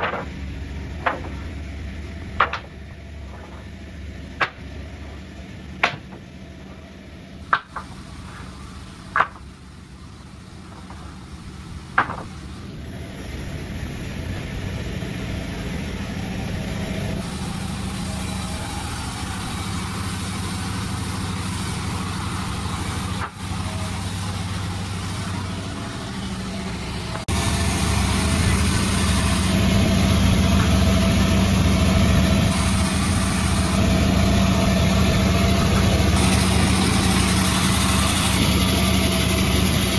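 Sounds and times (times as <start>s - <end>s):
machine engine running: 0.0s - 39.9s
sharp knocks: 2.4s - 3.7s, 5.8s - 6.3s, 9.1s - 9.5s, 11.9s - 12.4s.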